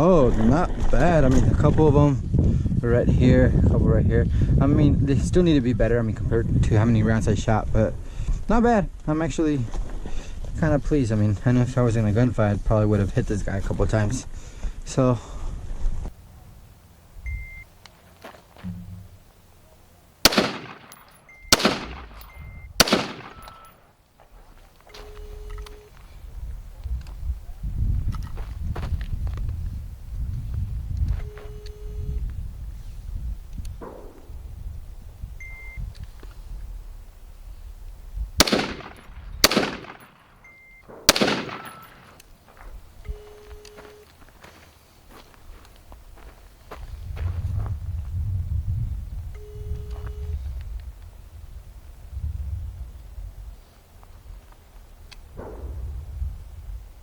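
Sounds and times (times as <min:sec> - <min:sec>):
gunshots with echo: 0:20.3 - 0:23.8, 0:38.4 - 0:40.4, 0:41.0 - 0:42.2.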